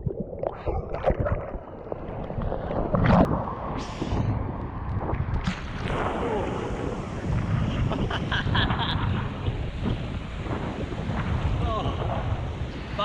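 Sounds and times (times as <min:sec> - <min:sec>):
sharp water splashes: 0:00.0 - 0:08.2
wind buffeting microphone: 0:02.1 - 0:13.0.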